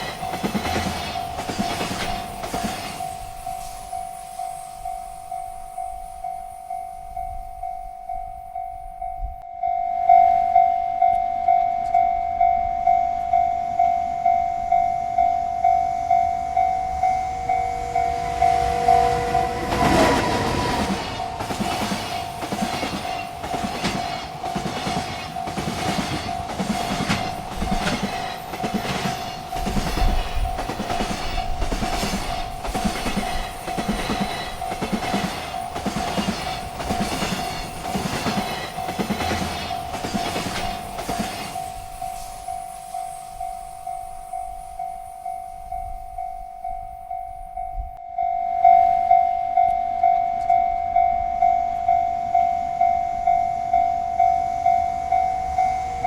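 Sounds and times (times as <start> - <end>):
train wheels clattering on rails: 0.0 - 6.9, 16.2 - 47.2
railroad crossing bell ringing: 0.0 - 56.0.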